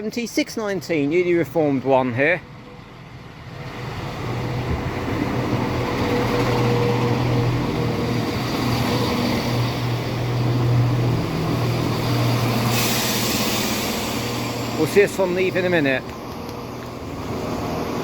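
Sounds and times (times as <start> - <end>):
diesel train engine drone: 0.0 - 18.0
sudden hiss: 11.8 - 16.1.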